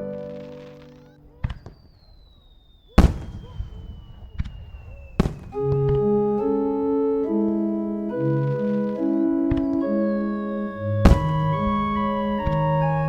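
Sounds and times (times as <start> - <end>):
organ-like keyboard chords: 0.0 - 1.3, 5.4 - 13.0
firework bangs: 0.2 - 6.1, 11.0 - 12.2
thin tone falling in pitch: 5.5 - 13.0.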